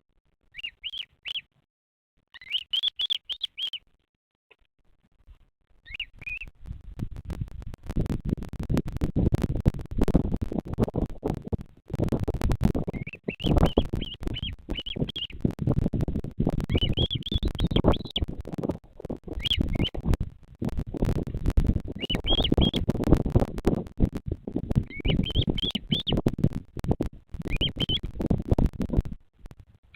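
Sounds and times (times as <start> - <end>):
bird chirping: 0.5 - 1.5, 2.3 - 3.8, 5.8 - 6.5, 12.8 - 15.5, 16.6 - 18.4, 19.3 - 20.1, 21.9 - 22.9, 24.7 - 26.2, 27.4 - 28.1
low crackling rumble: 4.8 - 29.9.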